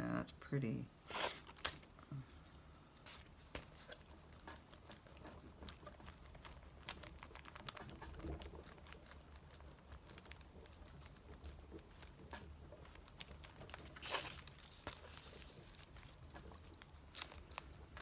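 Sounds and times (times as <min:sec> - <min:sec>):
paper taps and rustles: 0:03.2 - 0:04.6.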